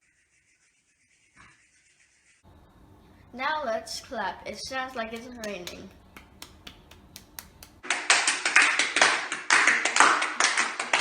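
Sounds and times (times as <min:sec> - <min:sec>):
hands clapping: 0:04.9 - 0:11.0.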